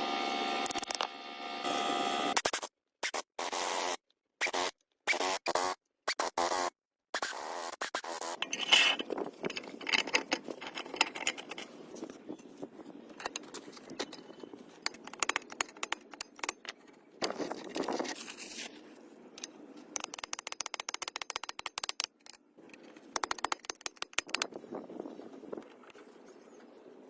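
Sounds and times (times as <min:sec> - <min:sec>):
metal clinking and scraping: 0:08.4 - 0:18.7.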